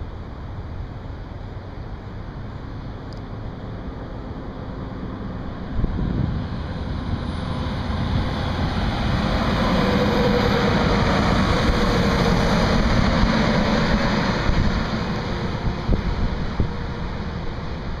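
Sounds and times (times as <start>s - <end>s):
vehicle engine hum: 0.0s - 18.0s.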